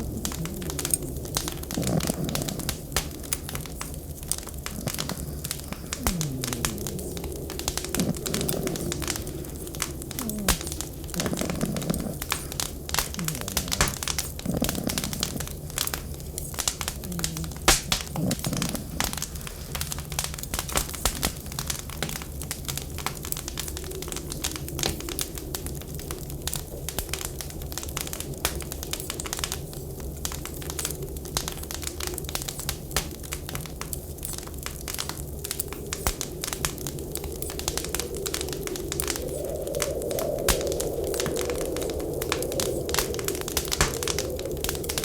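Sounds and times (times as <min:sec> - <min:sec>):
low rumble: 0:00.0 - 0:20.0
wood fire crackling and popping: 0:00.0 - 0:45.0.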